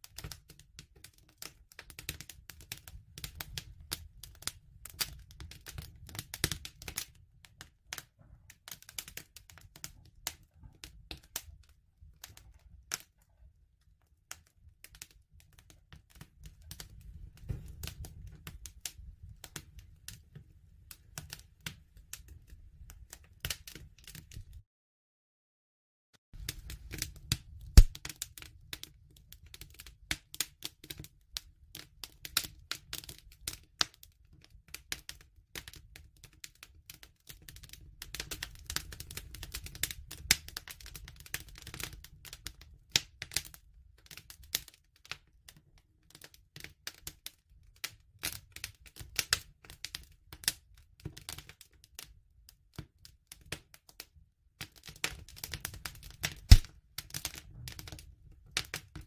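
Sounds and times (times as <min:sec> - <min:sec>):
wood fire crackling and popping: 0:00.0 - 0:24.6, 0:26.4 - 0:45.3, 0:48.2 - 0:52.1, 0:54.6 - 0:59.0
low rumble of flames: 0:16.3 - 0:21.2, 0:26.4 - 0:28.1, 0:56.4 - 0:56.6.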